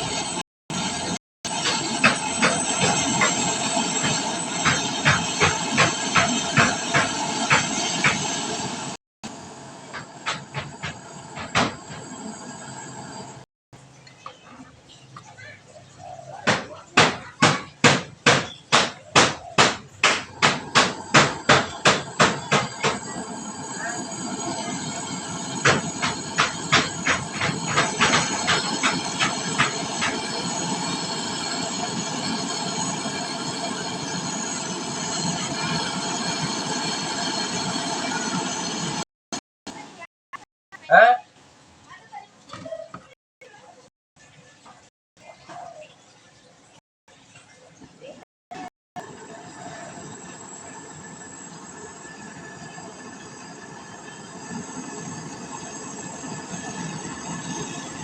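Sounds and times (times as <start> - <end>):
gas torch flame hissing: 0.0 - 13.5, 17.8 - 39.1, 49.0 - 58.0.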